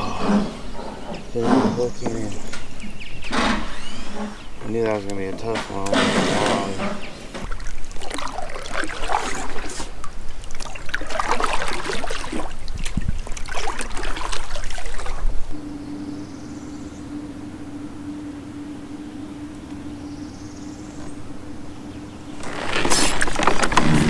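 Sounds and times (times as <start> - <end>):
steady low hum: 0.0 - 24.0
water splashing around a kayak: 7.4 - 15.6, 22.4 - 24.0.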